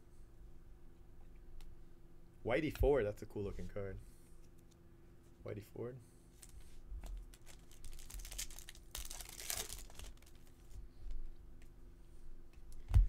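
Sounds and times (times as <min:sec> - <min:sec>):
cards being handled: 0:06.3 - 0:10.8
foil wrapper crinkling: 0:06.4 - 0:10.8.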